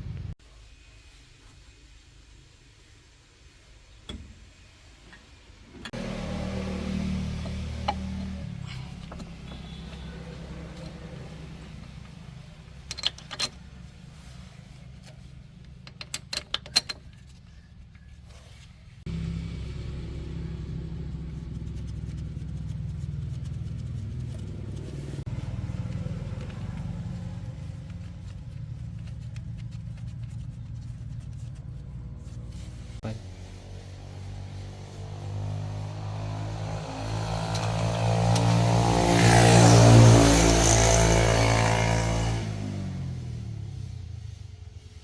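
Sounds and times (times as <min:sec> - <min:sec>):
truck engine running: 0:05.9 - 0:16.0, 0:19.0 - 0:33.2.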